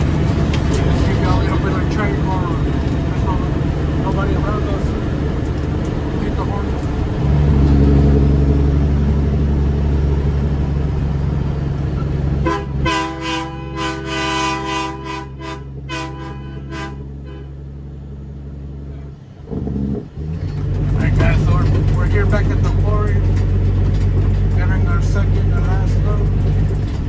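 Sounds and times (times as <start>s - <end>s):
diesel truck engine drone: 0.0s - 27.0s
train horn short toots: 12.4s - 17.6s.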